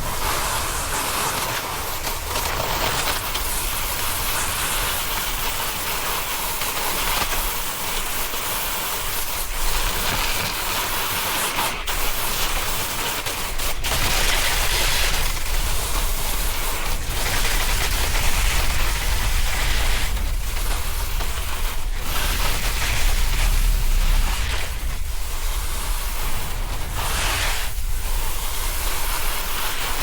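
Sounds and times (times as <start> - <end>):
snowboard carving over snow: 0.0 - 30.0
wind rumbling on microphone: 13.8 - 30.0.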